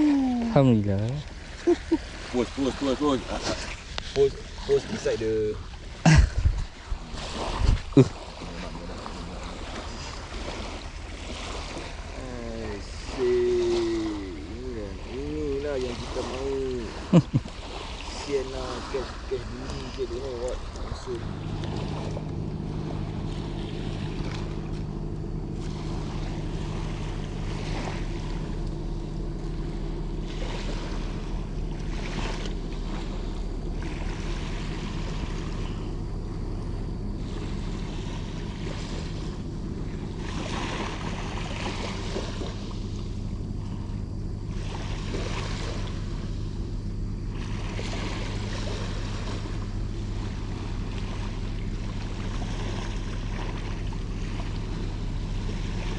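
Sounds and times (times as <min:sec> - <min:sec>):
light surf on beach: 0:00.0 - 0:55.9
low engine hum: 0:00.0 - 0:55.9
wind buffeting microphone: 0:05.6 - 0:11.6.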